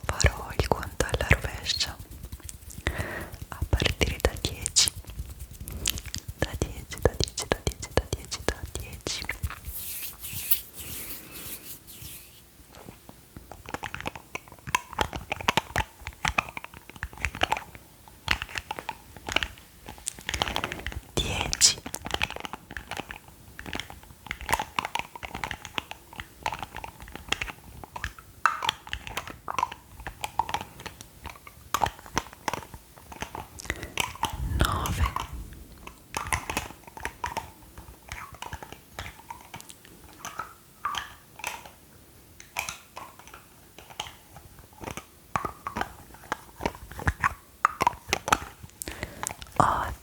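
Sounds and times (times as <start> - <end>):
wet mouth clicks and pops: 0.1 - 9.6.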